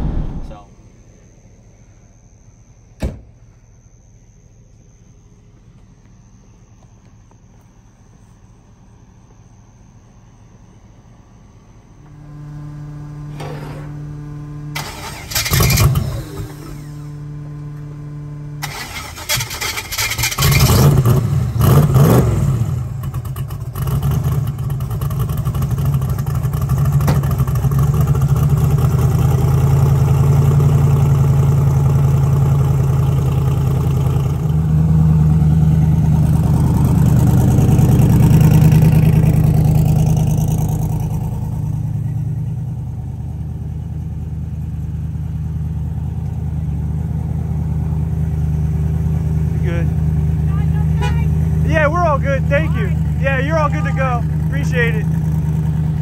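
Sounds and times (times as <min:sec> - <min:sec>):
steady hum: 0:00.0 - 0:03.0
race car engine starting and idling: 0:11.0 - 0:56.0.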